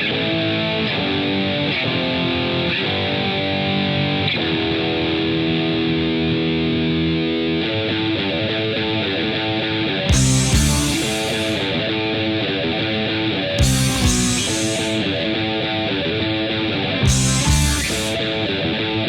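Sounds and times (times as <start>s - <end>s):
distorted electric guitar chords: 0.0s - 19.0s.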